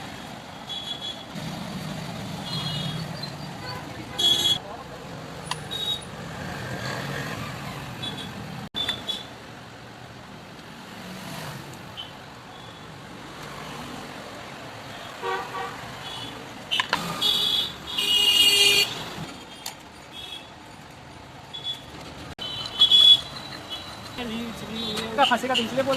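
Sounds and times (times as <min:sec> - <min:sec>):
road traffic noise: 0:00.0 - 0:25.9
vehicle horns tooting: 0:02.4 - 0:04.6, 0:15.0 - 0:19.1, 0:21.5 - 0:25.9.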